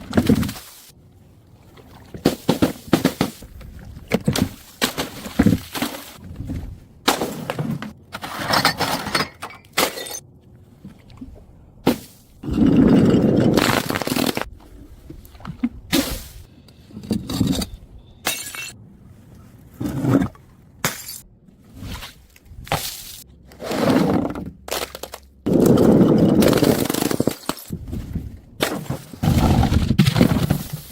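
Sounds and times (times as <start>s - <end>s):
glass bottles breaking: 8.5s - 10.2s, 18.3s - 18.8s.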